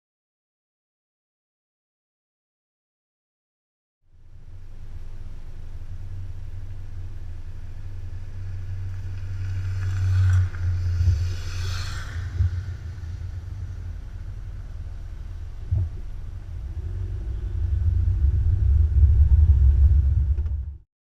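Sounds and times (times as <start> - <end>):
motorcycle engine and wind rumble: 4.2 - 20.8
wind whoosh: 9.6 - 20.8.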